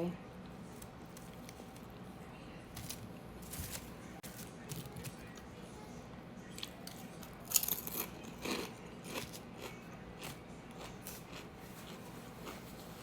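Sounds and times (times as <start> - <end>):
person chewing crunchy food: 6.6 - 13.0.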